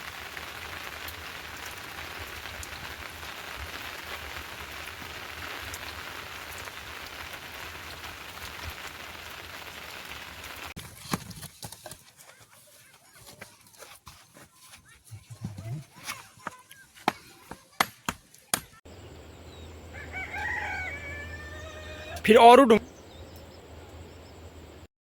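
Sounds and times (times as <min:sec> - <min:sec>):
steady rain falling: 0:00.0 - 0:10.8.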